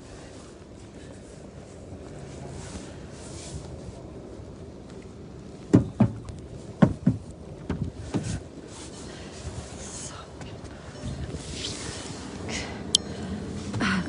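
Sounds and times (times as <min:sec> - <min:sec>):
low steady rumble: 0:00.0 - 0:14.0
dull thumps: 0:05.7 - 0:08.4.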